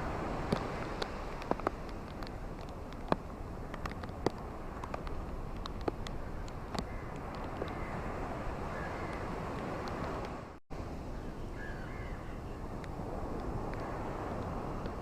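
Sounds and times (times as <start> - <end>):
ocean waves washing on beach: 0.0 - 11.4, 12.0 - 15.0
bird calls: 11.1 - 12.7.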